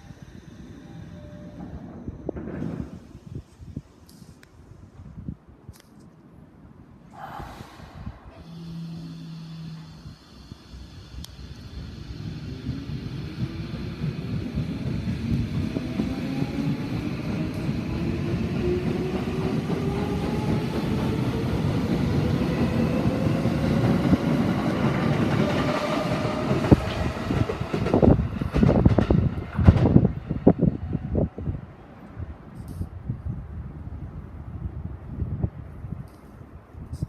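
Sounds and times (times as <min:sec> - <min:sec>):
rail rumble: 0:00.0 - 0:05.6, 0:06.7 - 0:36.9
electric train motor whine: 0:08.4 - 0:19.0
train wheel clacks: 0:23.8 - 0:30.2.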